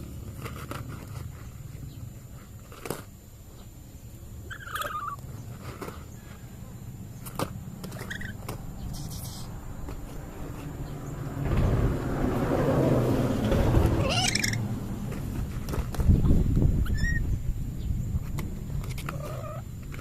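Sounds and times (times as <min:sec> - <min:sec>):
parrot chattering: 0:04.5 - 0:05.2, 0:08.0 - 0:09.5, 0:14.0 - 0:14.6.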